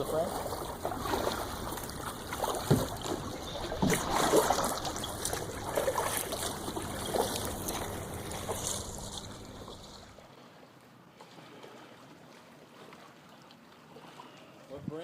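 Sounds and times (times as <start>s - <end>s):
kayak paddle splashing in water: 0.0s - 10.6s
trickle of moving water: 0.0s - 10.6s.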